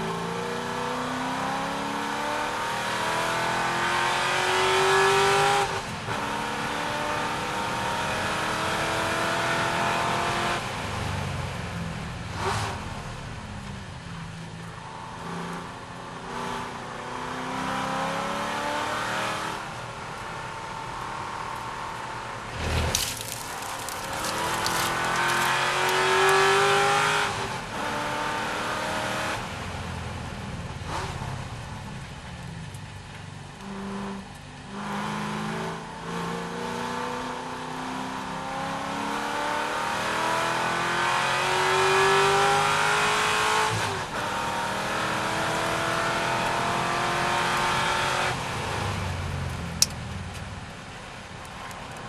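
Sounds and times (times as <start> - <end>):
car engine accelerating: 21.0 - 29.6.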